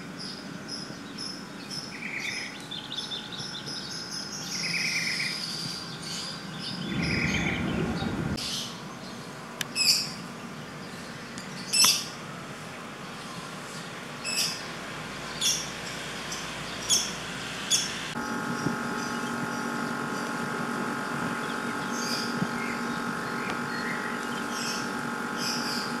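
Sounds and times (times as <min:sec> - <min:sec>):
birds chirping: 0:00.1 - 0:09.2, 0:14.2 - 0:26.0
machine humming: 0:06.3 - 0:08.4, 0:14.6 - 0:26.0.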